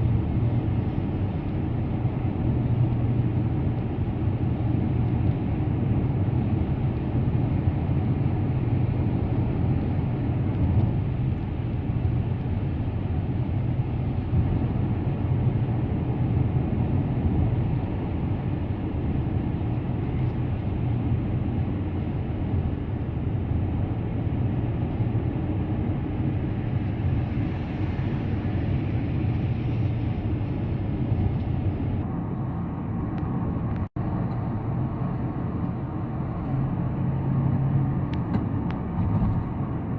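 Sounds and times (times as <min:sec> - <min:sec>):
car engine and tyre road noise: 0:00.0 - 0:39.9.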